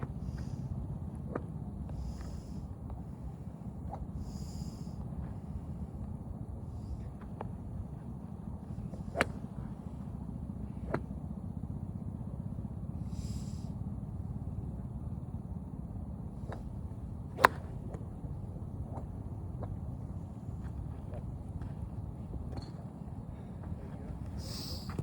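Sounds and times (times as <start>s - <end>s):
steady low rumble: 0.0s - 25.0s
golf clubs striking balls: 8.7s - 10.1s, 16.4s - 23.2s.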